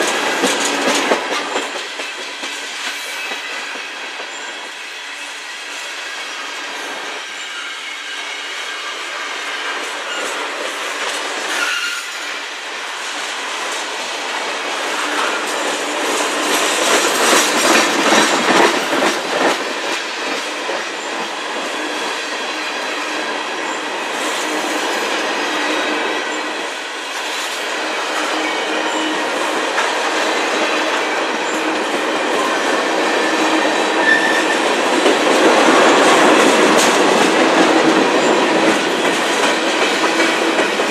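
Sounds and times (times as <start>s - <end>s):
train rumble: 0.0s - 7.4s, 8.4s - 40.9s
train wheels clacking over joints: 0.0s - 8.6s, 13.0s - 40.9s
high wheel squeal: 6.7s - 10.5s, 11.5s - 12.4s, 32.4s - 34.8s.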